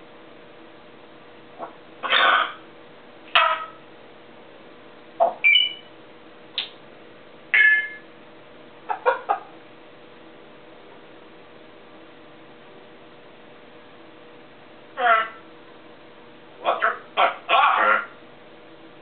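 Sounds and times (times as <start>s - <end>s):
parrot squawks and whistles: 2.0s - 2.6s, 5.2s - 5.9s, 7.6s - 8.0s.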